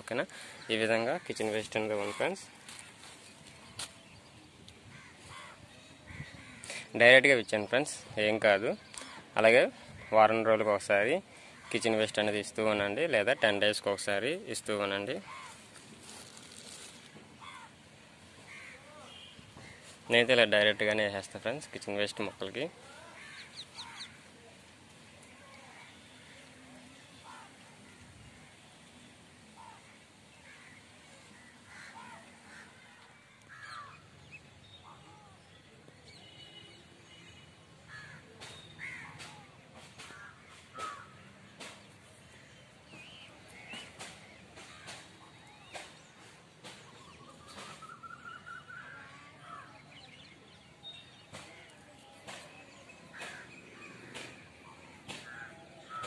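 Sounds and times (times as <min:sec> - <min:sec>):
birds calling faintly: 0:00.0 - 0:56.0.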